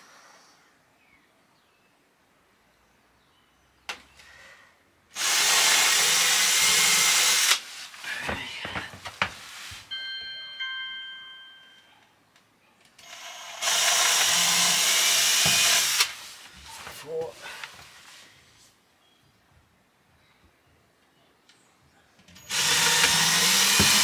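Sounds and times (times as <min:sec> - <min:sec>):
cordless drill boring into plywood: 0:05.2 - 0:07.6, 0:13.0 - 0:16.2, 0:22.4 - 0:24.0.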